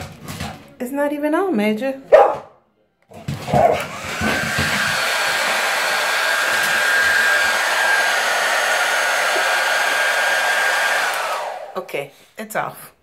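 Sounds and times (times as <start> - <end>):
hair dryer running: 3.3 - 11.9.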